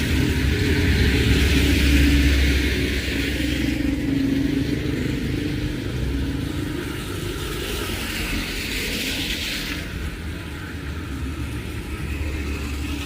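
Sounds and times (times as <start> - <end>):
heavy rain hiss: 0.0 - 13.0
vehicle driving past on wet road: 0.0 - 13.0.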